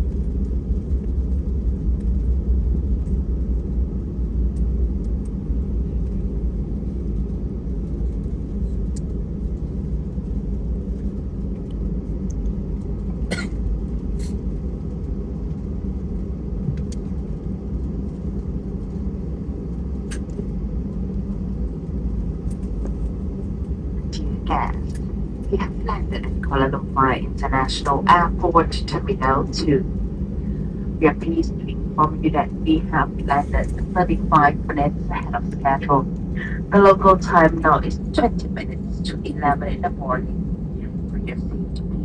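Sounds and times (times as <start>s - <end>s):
aircraft cabin low rumble: 0.0s - 42.0s.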